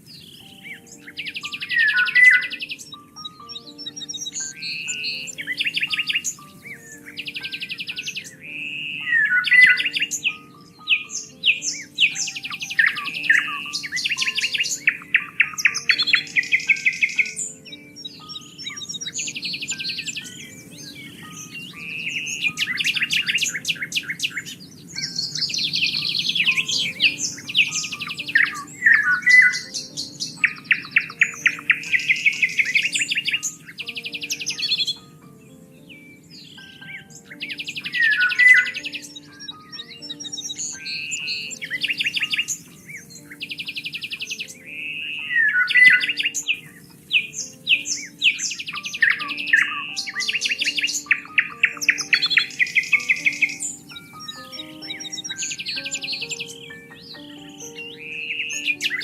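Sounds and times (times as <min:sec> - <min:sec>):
soft background music: 0:00.0 - 0:59.0
songbirds singing and chirping: 0:00.0 - 0:59.0.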